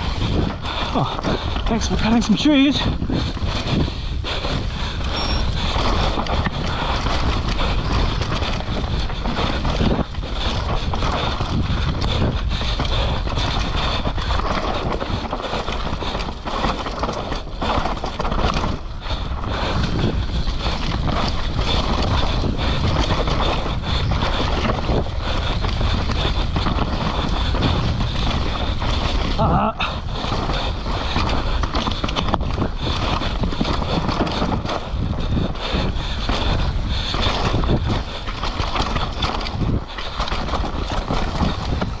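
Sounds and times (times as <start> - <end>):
wind on microphone: 0.0 - 42.0
bike knocking and rattling: 4.9 - 29.4.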